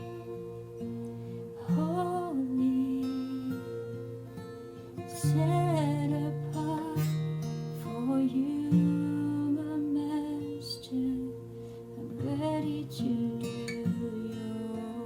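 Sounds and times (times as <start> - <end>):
acoustic guitar strumming: 0.0 - 15.0
soft wordless vocal: 0.0 - 15.0.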